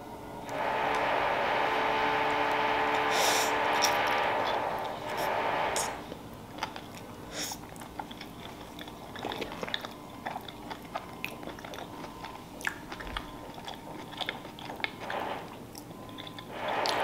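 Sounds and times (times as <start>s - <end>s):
chewing food: 6.1s - 17.0s
wet mouth clicks and smacks: 6.6s - 15.0s.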